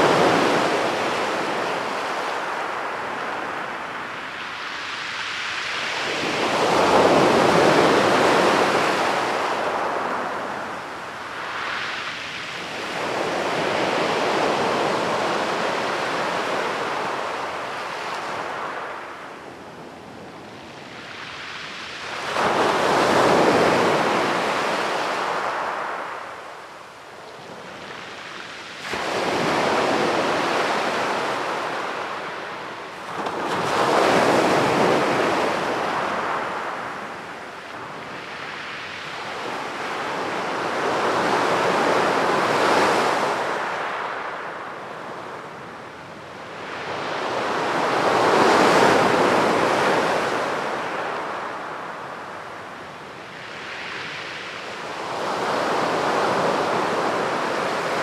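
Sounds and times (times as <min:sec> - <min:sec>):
sea waves breaking on beach: 0:00.0 - 0:19.0, 0:27.4 - 0:45.5.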